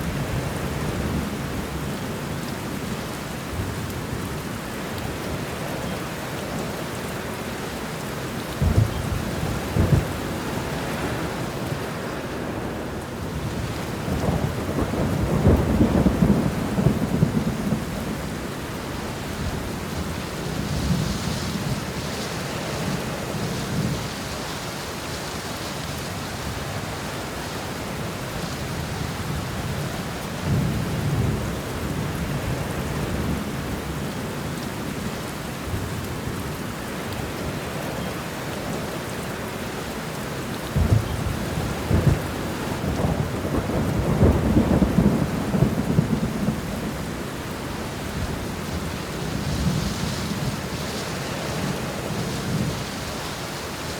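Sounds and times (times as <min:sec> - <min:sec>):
steady rain: 0:00.0 - 0:53.9
thunder rumbling: 0:13.5 - 0:18.6, 0:40.7 - 0:50.9.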